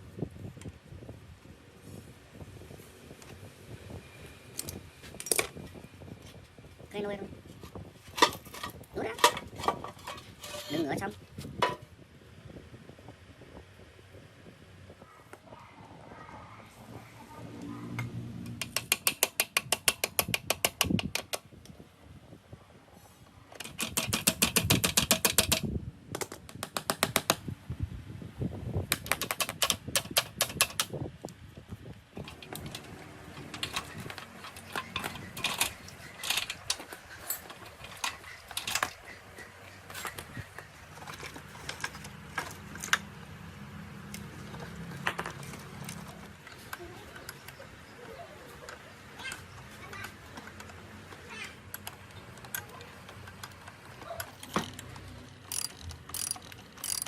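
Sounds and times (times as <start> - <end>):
rapid ratchet clicks: 18.6 - 21.4, 23.6 - 25.6, 55.4 - 57.0.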